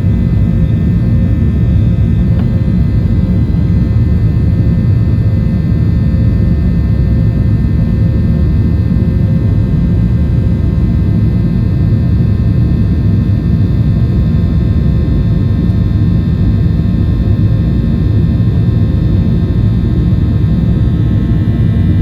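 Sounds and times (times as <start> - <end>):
faint whining tones: 0.0 - 7.2
jet engines rumbling: 0.0 - 13.8.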